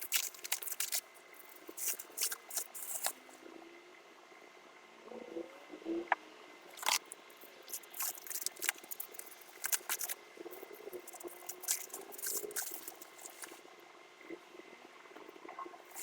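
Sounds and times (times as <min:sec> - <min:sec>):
packaging crinkling: 0:00.0 - 0:03.2, 0:06.8 - 0:10.2, 0:10.9 - 0:13.6.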